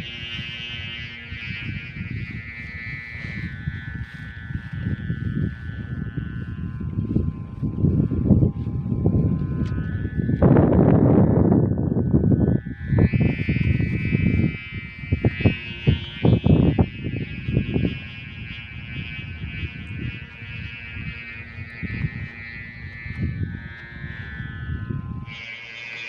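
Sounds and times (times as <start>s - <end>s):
high buzzing drone: 0.0s - 26.0s
wind rumbling on microphone: 0.0s - 26.0s.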